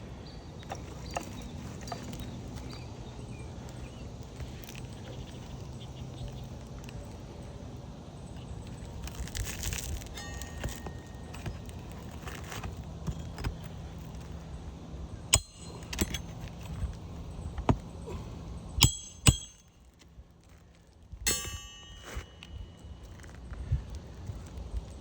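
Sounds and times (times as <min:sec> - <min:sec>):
low steady rumble: 0:00.0 - 0:25.0
metal tools clinking on shingles: 0:00.6 - 0:02.8, 0:08.8 - 0:14.6, 0:15.2 - 0:20.6, 0:21.2 - 0:24.3.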